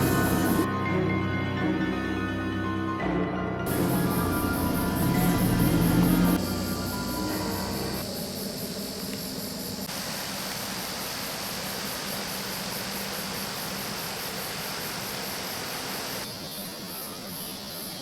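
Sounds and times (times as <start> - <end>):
insects chirping: 0.0 - 0.7, 3.7 - 18.0
background music: 0.0 - 9.1.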